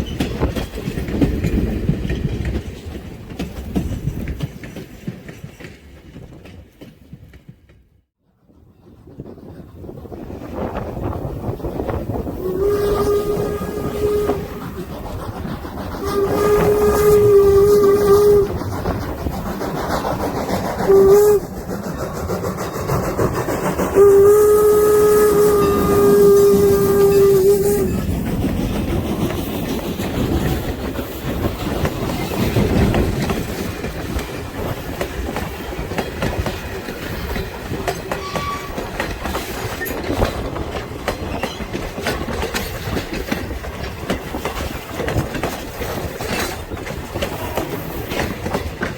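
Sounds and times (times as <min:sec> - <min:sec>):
train wheels clicking on rail joints: 0:00.0 - 0:48.9
steam whistle blowing: 0:12.4 - 0:14.9, 0:16.0 - 0:18.6, 0:20.9 - 0:21.6, 0:24.0 - 0:28.0, 0:38.2 - 0:38.8.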